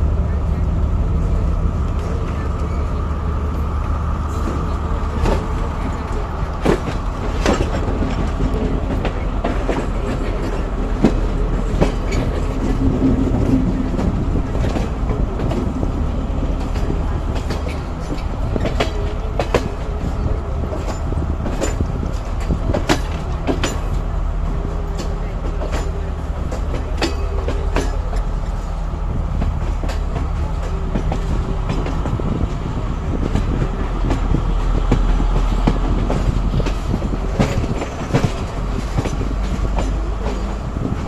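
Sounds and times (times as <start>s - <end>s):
train rumbling: 0.0s - 41.0s
wheels clicking over rail joints: 4.3s - 28.8s, 33.1s - 41.0s.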